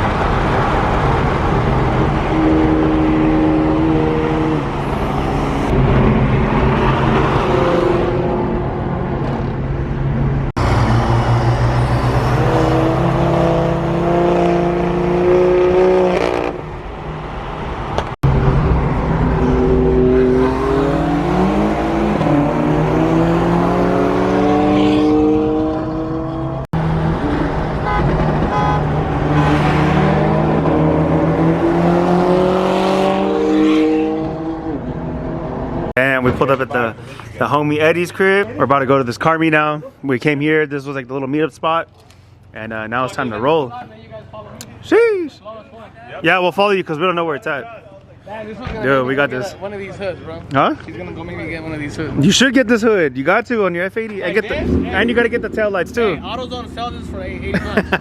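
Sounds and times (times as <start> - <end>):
sports car engines revving: 0.0 - 36.0, 48.6 - 58.0.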